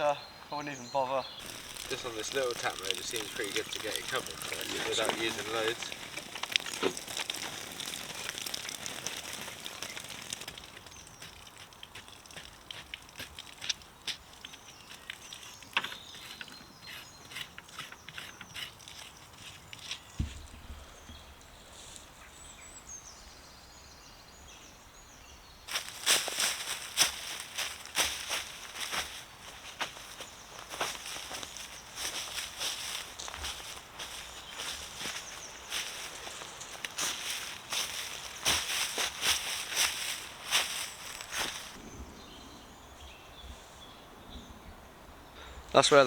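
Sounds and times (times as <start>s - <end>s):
faint hiss: 0.0s - 7.0s
footsteps crunching on woodland floor: 1.4s - 15.1s, 25.7s - 41.8s
small clicks and crackles: 1.4s - 16.6s, 25.7s - 41.8s.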